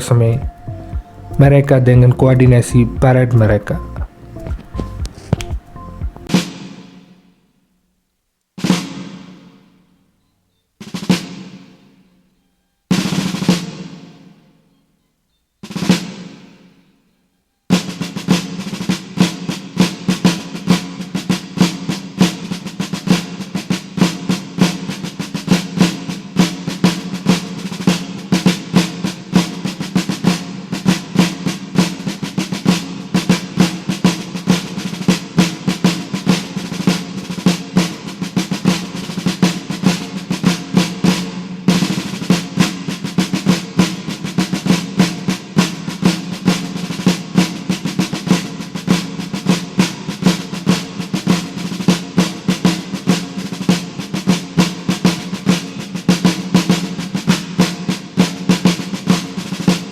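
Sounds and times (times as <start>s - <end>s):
steady low tone: 0.0s - 6.3s
snare drum rolls: 0.0s - 7.2s, 8.6s - 9.7s, 10.8s - 11.8s, 17.7s - 59.9s.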